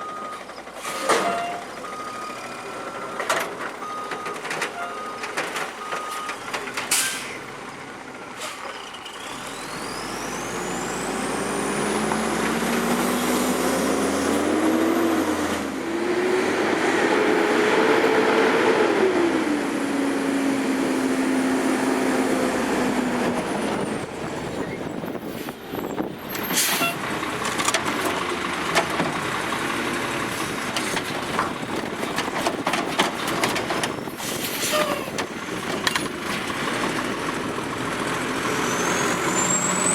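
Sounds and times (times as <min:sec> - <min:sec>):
garbage truck engine revving: 0:09.0 - 0:39.9.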